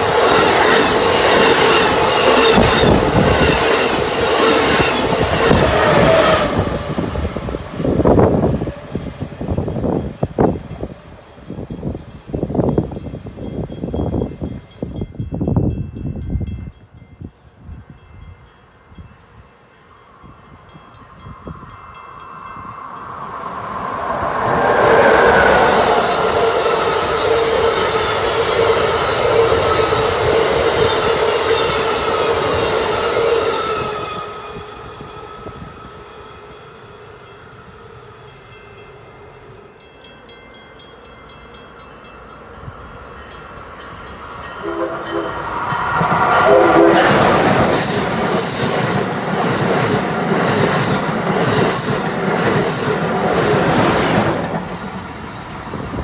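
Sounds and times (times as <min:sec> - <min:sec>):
train wheel noise: 0:00.0 - 0:15.8, 0:20.4 - 0:56.0
train passing at speed: 0:00.0 - 0:56.0
train horn blasts: 0:44.2 - 0:48.0.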